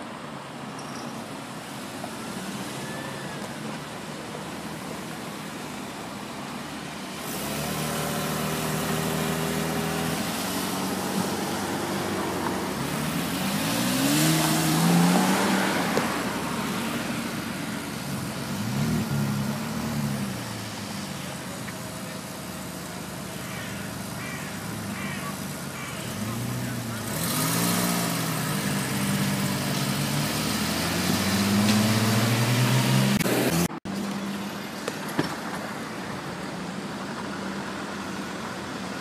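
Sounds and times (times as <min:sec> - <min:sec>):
car engine revving: 0:07.0 - 0:34.5.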